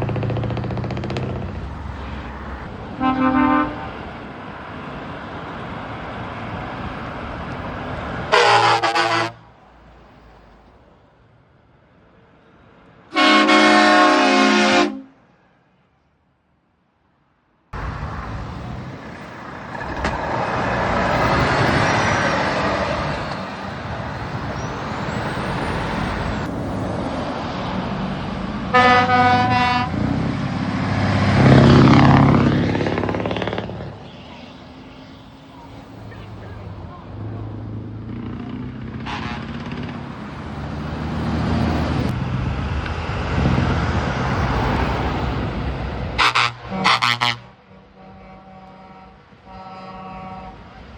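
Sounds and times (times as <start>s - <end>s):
truck engine revving: 0.0s - 9.3s, 17.8s - 34.9s, 36.6s - 47.5s
trucks driving past: 0.0s - 50.9s
multi-note air horn: 3.0s - 3.9s, 8.3s - 9.4s, 13.1s - 15.2s, 28.7s - 30.0s, 39.0s - 39.5s, 46.2s - 50.6s.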